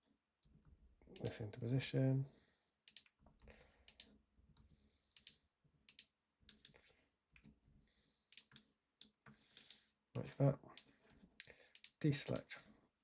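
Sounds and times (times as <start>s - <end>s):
computer mouse and keyboard clicks: 2.9s - 6.8s, 8.3s - 12.5s.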